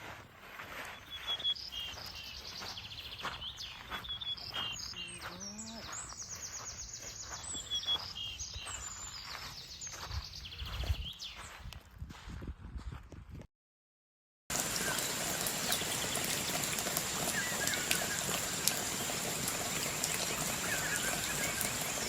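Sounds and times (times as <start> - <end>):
small birds chirping: 0.5 - 11.8, 14.5 - 22.0
faint outdoor hiss: 14.5 - 22.0.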